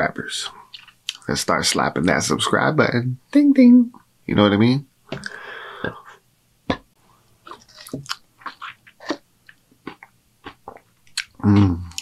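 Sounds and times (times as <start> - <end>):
person chewing food: 0.7 - 1.2, 6.7 - 12.0
breath: 5.2 - 6.2.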